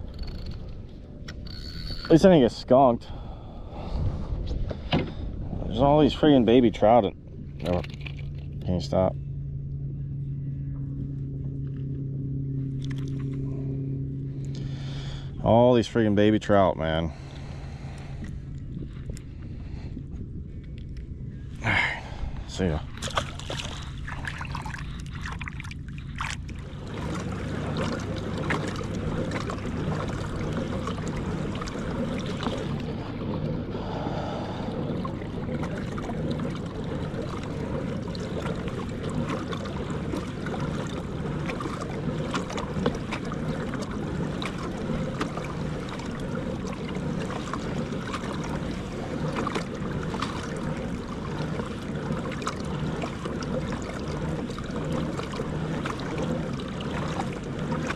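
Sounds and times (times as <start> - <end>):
steady low hum: 0.0 - 57.9
water washing: 21.6 - 57.9.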